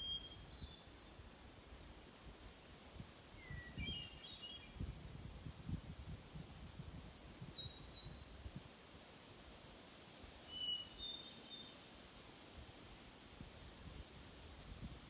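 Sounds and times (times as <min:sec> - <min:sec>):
songbird chirping: 0:00.0 - 0:01.2, 0:03.4 - 0:04.8, 0:07.0 - 0:08.2, 0:10.4 - 0:11.9.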